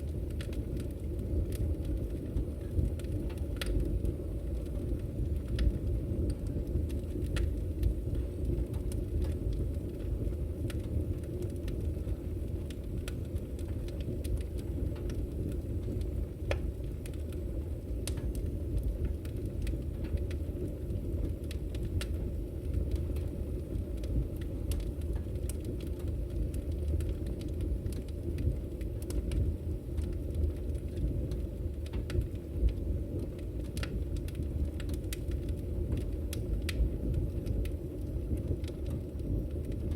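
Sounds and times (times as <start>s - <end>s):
fire rumbling in stove: 0.0s - 39.9s
logs crackling and popping: 0.0s - 39.9s.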